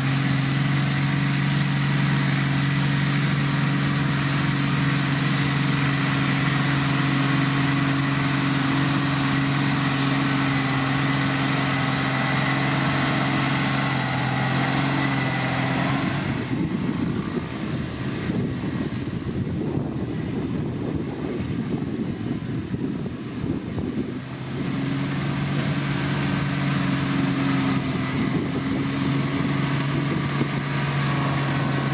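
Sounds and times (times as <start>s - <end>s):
diesel engine of heavy machinery: 0.0s - 31.9s.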